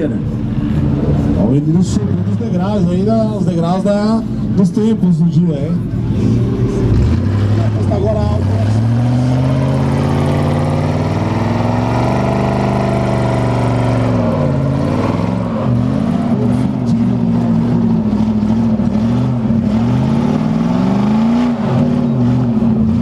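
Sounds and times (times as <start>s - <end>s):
car engine revving: 5.6s - 23.0s.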